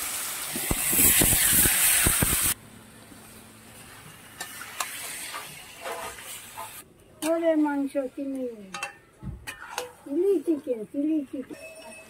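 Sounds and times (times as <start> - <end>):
food sizzling in hot oil: 0.0 - 2.6, 3.8 - 6.8
metal spatula scraping a pan: 4.4 - 6.8, 8.8 - 10.0.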